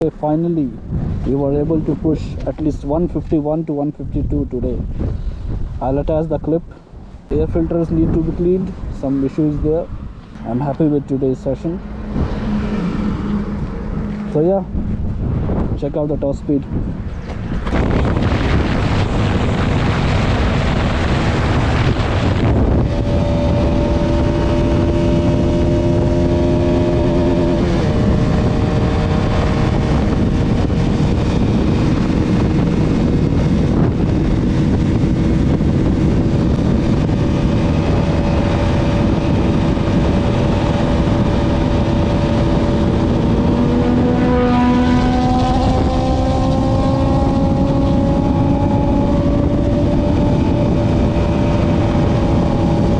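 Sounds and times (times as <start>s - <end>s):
wind rush on microphone: 0.0s - 52.9s
motorcycle engine running hard: 20.0s - 52.9s.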